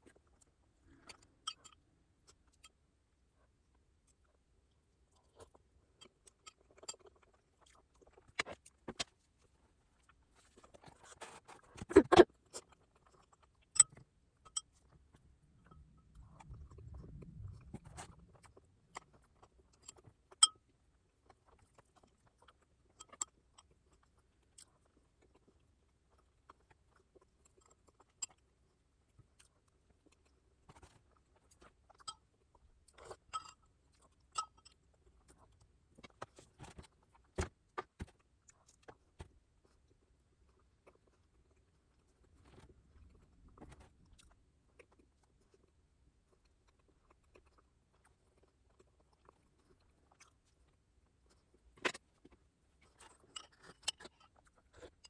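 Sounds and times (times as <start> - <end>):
mouth eating noises: 11.1 - 14.0.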